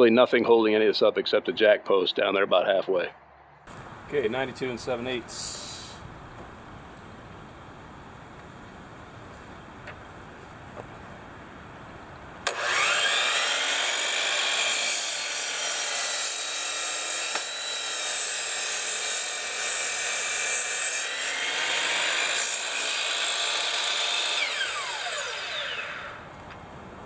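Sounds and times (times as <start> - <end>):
electric saw cutting wood: 12.4 - 26.4.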